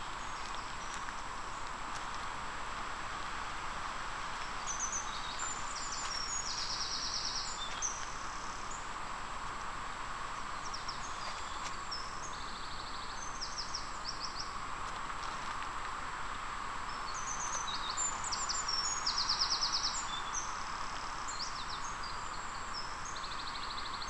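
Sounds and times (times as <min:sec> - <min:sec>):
outdoor background hiss: 0:00.0 - 0:24.0
songbirds whistling and trilling: 0:04.5 - 0:08.9, 0:16.9 - 0:24.0.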